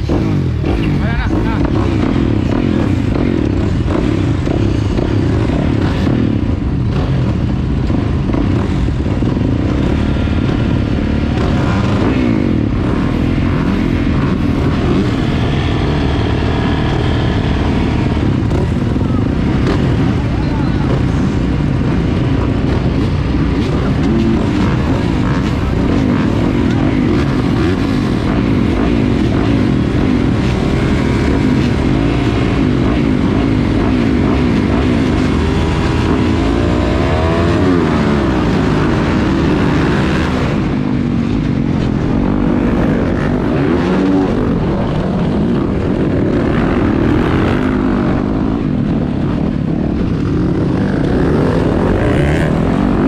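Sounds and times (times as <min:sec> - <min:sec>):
motorcycle engines revving: 0:00.0 - 0:53.0.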